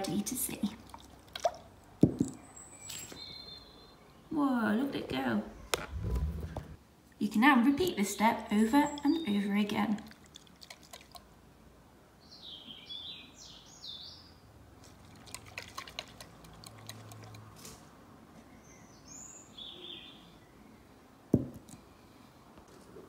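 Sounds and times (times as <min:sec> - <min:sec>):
faint bird chirping: 0:02.4 - 0:04.5, 0:18.4 - 0:21.0.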